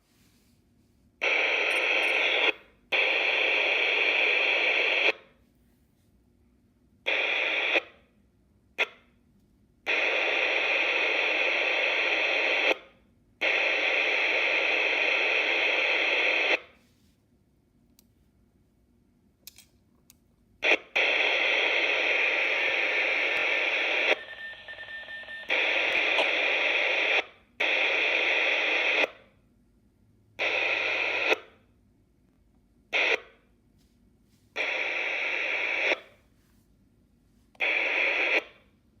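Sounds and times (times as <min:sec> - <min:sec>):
radio static hiss: 0:01.2 - 0:05.2, 0:07.1 - 0:08.0, 0:09.9 - 0:16.7, 0:20.6 - 0:29.2, 0:30.4 - 0:31.6, 0:33.0 - 0:33.3, 0:34.6 - 0:36.3, 0:37.6 - 0:38.7.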